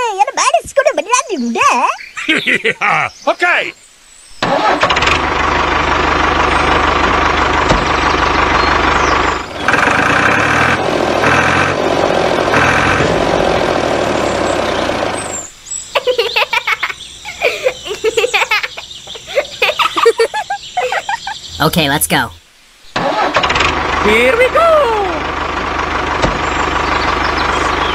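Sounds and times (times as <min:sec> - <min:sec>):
tractor engine running: 0:04.4 - 0:15.5, 0:23.0 - 0:27.9.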